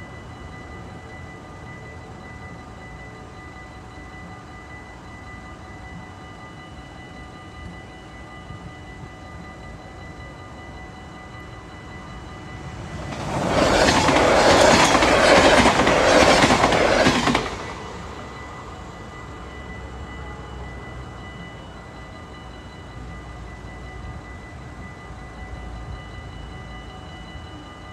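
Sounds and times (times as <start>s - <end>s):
crossing warning bell: 0.0s - 27.9s
train wheels clattering on rails: 12.4s - 18.6s.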